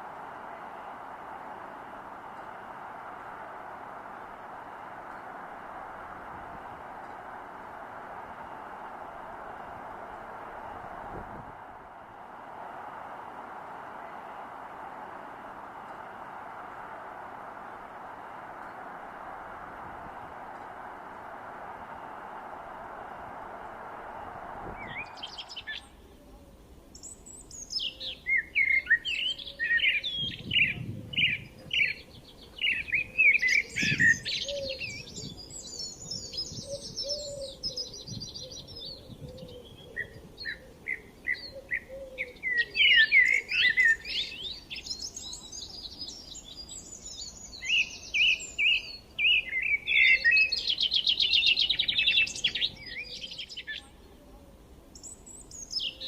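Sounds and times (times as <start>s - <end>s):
small birds chirping: 26.9s - 54.1s, 55.0s - 56.0s.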